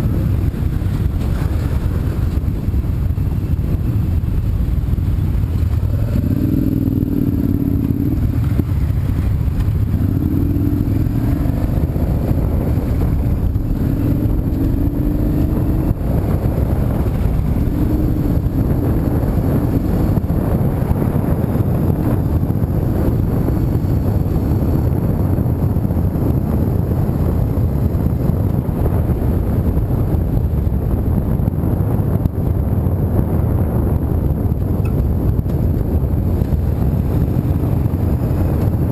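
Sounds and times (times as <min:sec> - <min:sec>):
car engine rumble: 0:00.0 - 0:38.9
road noise: 0:00.0 - 0:38.9
pitched hum rising and falling: 0:02.5 - 0:32.2.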